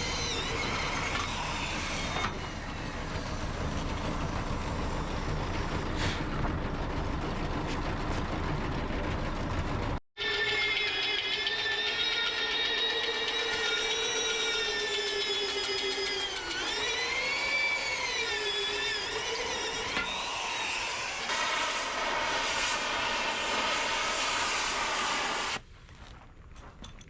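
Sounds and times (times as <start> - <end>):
power tool motor whining: 0.0 - 6.0, 10.6 - 25.6.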